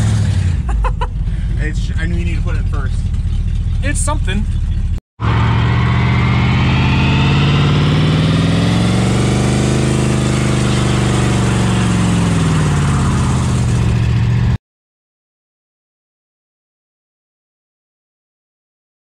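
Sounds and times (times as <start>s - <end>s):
car engine at high revs: 0.0s - 14.6s.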